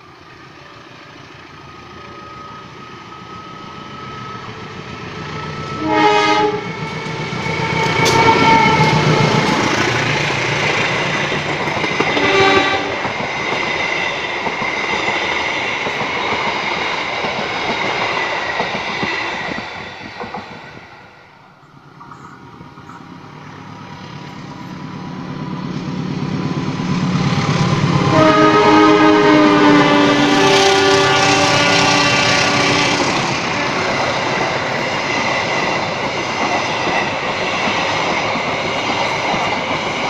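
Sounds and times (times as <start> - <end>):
train approaching: 0.0 - 40.0
train rumble and wheel clatter: 0.0 - 40.0
train horn: 5.5 - 9.6, 12.0 - 13.1, 27.8 - 34.8.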